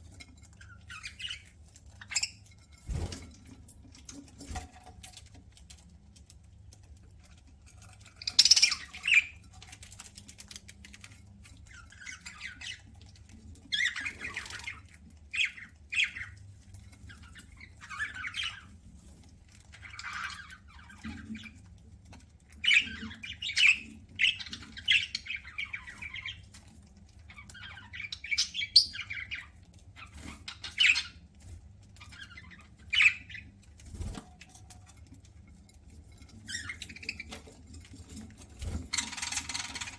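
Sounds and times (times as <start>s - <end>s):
budgerigars chirping and squawking: 0.1s - 3.1s, 8.0s - 18.9s, 19.5s - 21.7s, 22.5s - 34.3s, 36.2s - 39.9s.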